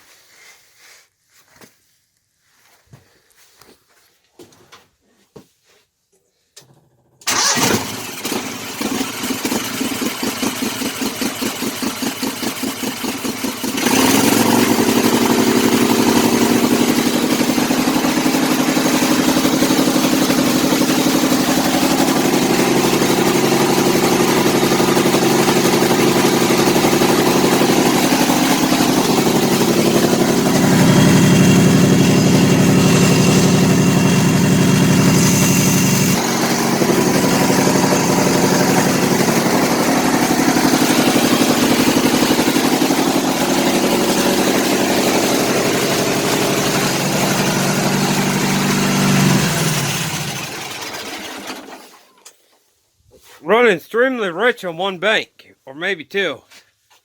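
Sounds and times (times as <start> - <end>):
electric starter cranking engine: 6.6 - 52.1
small engine rough idle: 6.6 - 52.1.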